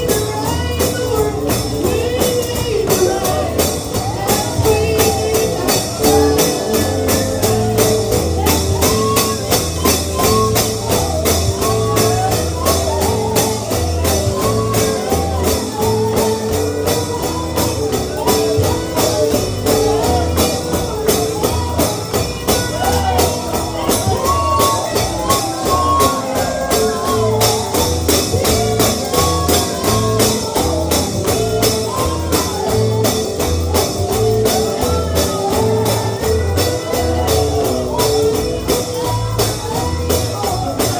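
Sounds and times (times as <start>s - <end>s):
bluegrass band playing: 0.0s - 40.9s
tambourine beat: 0.0s - 40.9s.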